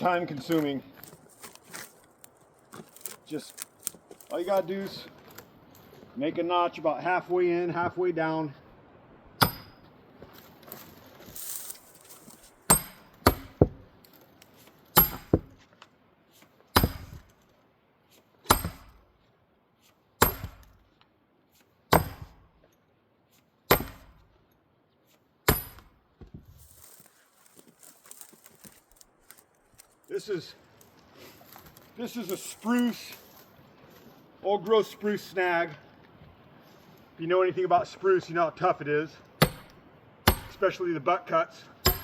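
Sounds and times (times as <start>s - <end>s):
axe splitting wood with ring: 9.4s - 9.9s, 12.6s - 13.9s, 15.0s - 15.6s, 16.7s - 17.3s, 18.4s - 19.1s, 20.2s - 20.8s, 21.9s - 22.5s, 23.7s - 24.3s, 25.4s - 26.0s, 39.4s - 40.6s.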